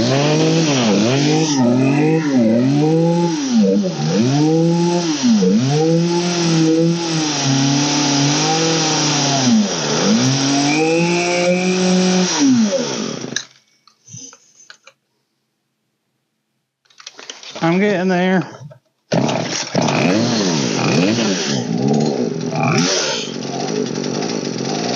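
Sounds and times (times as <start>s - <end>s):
chainsaw engine revving: 0.0s - 13.5s, 19.1s - 24.9s.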